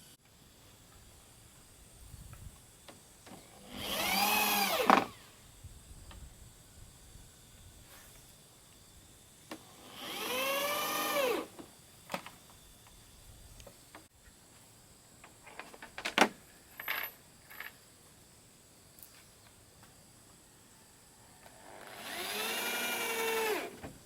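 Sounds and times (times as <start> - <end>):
power drill whining: 3.4 - 5.3, 9.7 - 11.6, 21.6 - 23.8.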